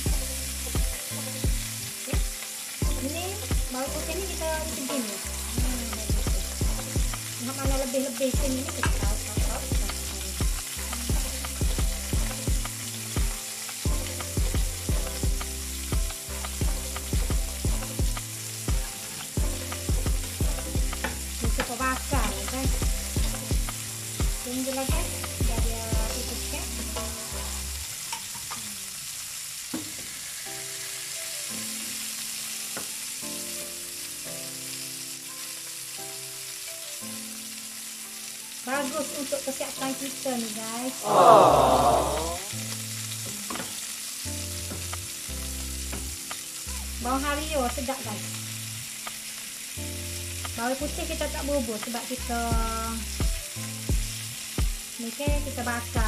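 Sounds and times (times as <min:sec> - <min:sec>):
background music with a beat: 0:00.0 - 0:03.8, 0:05.0 - 0:26.3, 0:44.3 - 0:46.6, 0:51.8 - 0:56.0
fish sizzling in a pan: 0:00.0 - 0:56.0.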